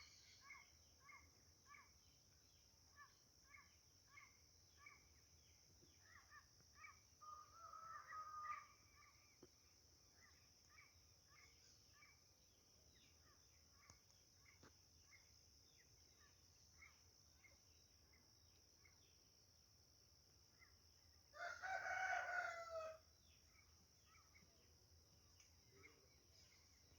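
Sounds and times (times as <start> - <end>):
high insect hum: 0.0 - 26.9
small birds chirping: 9.0 - 19.3
rooster crowing: 21.4 - 23.0.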